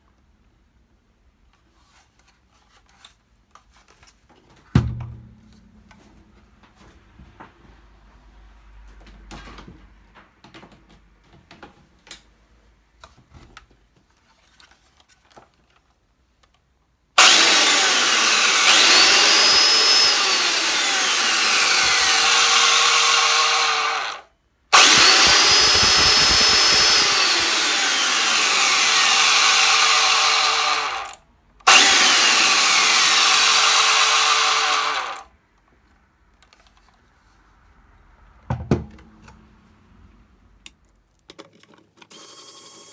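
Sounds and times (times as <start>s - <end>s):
belt sander whining: 17.2s - 24.2s, 24.8s - 35.2s.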